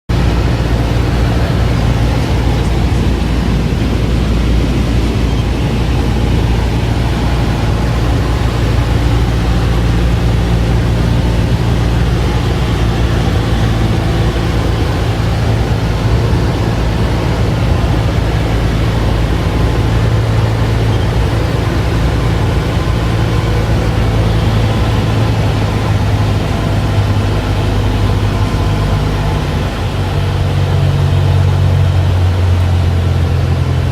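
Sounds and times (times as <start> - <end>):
airplane engine and propeller drone: 0.1 - 33.9.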